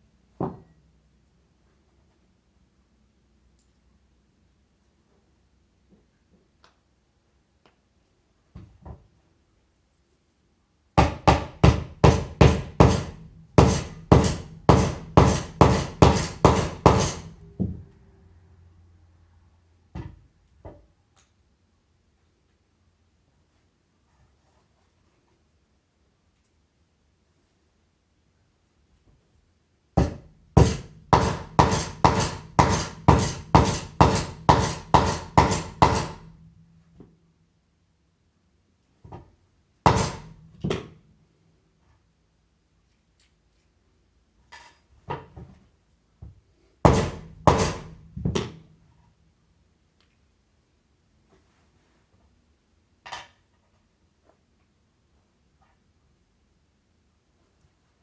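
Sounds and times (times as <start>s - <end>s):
hammer striking metal bearing: 11.0s - 17.7s, 30.0s - 36.6s, 39.9s - 40.9s, 46.9s - 48.5s.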